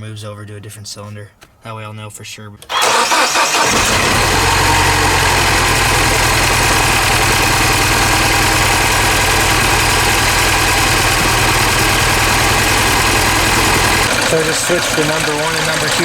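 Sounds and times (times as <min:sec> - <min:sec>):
car engine idling with misfire: 0:02.7 - 0:16.0.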